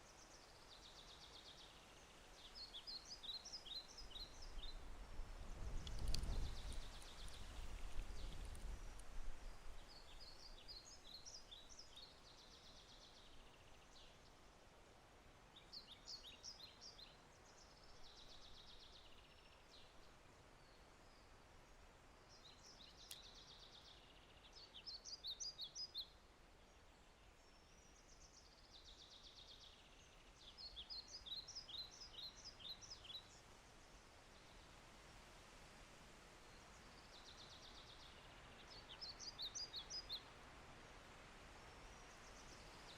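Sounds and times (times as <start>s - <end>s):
faint steady hiss: 0.0s - 42.9s
songbird chirping and trilling: 26.8s - 33.4s.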